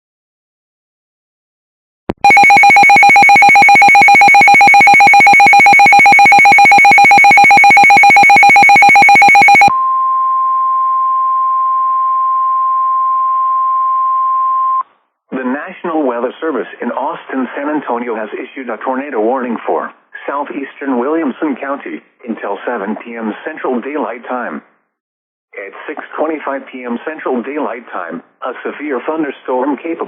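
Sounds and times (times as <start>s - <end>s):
harsh buzzing alert tone: 2.2s - 9.7s
steady single-pitch alarm tone: 2.2s - 13.8s.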